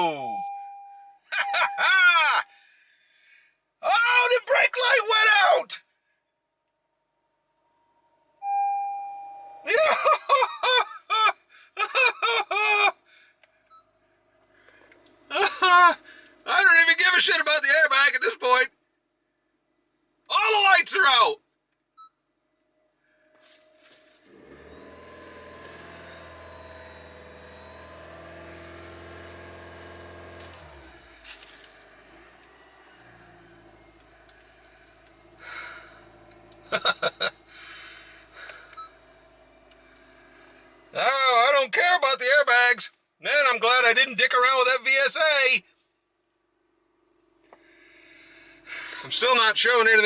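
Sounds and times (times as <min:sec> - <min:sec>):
electronic dashboard chime: 0:00.2 - 0:01.9, 0:08.4 - 0:09.7
man laughing: 0:01.4 - 0:02.4, 0:09.7 - 0:12.9, 0:15.3 - 0:16.0, 0:36.7 - 0:37.5
car engine idling: 0:14.2 - 0:17.3, 0:24.2 - 0:41.2, 0:46.4 - 0:50.0.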